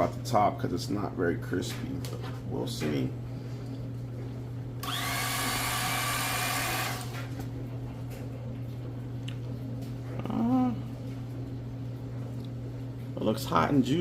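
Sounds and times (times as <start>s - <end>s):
steady low hum: 0.0s - 14.0s
electric carving knife whining: 4.8s - 7.3s.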